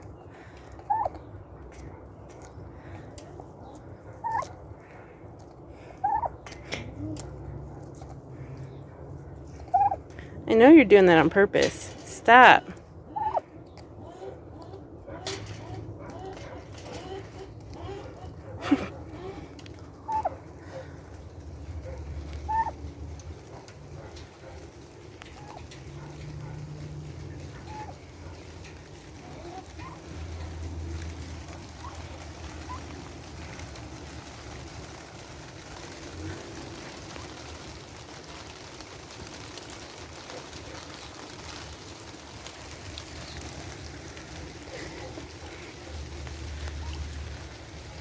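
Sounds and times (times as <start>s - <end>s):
dog whining: 14.0s - 20.4s.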